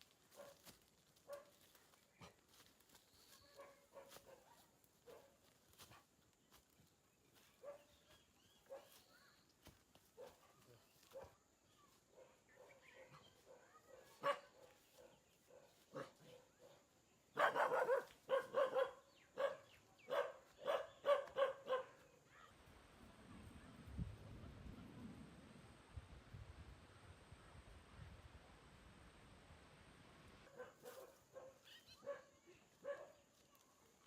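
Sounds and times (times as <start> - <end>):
dog barking: 0.3 - 0.7, 1.3 - 1.6, 3.6 - 5.4, 7.6 - 8.0, 8.6 - 9.0, 10.2 - 11.4, 12.1 - 22.1, 30.5 - 33.3.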